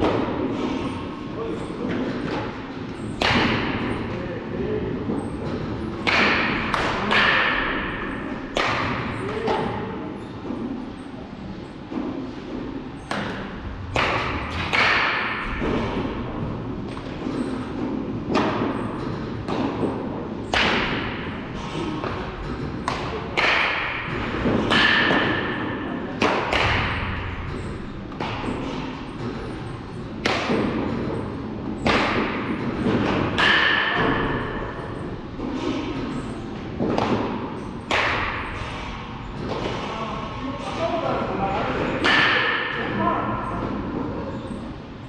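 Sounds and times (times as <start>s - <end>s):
baseball bat hitting ball: 3.2s - 4.0s, 6.0s - 9.7s, 13.1s - 16.2s, 16.9s - 21.3s, 22.8s - 27.4s, 36.8s - 38.5s.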